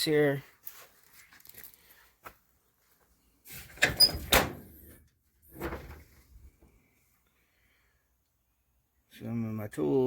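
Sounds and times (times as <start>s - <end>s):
toolbox clattering and clanking: 3.5s - 6.2s.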